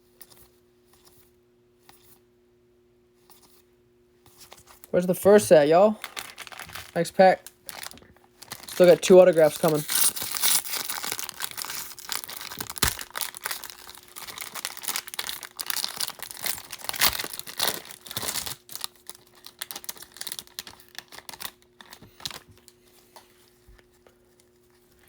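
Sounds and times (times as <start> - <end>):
wrapper tearing and crinkling: 6.0 - 22.7.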